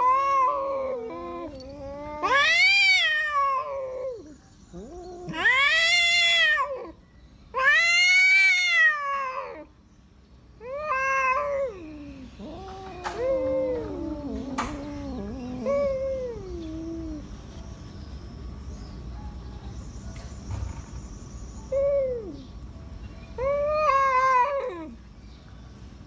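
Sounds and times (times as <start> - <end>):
cats growling: 0.0 - 9.8, 10.6 - 17.4, 23.4 - 25.0
cats yowling: 0.0 - 9.8, 10.6 - 17.4, 21.7 - 22.4, 23.4 - 25.0.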